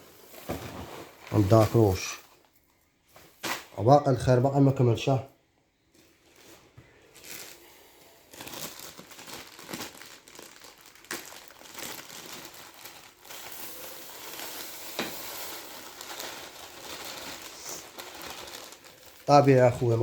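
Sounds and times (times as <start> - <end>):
plastic packaging crinkling: 6.0 - 20.0.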